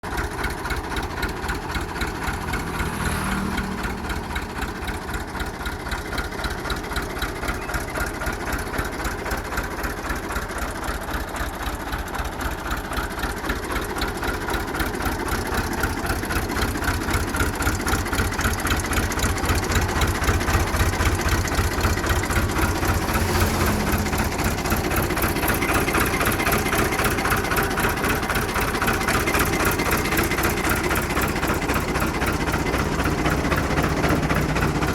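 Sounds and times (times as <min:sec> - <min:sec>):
diesel tractor engine idling: 0:00.0 - 0:34.9.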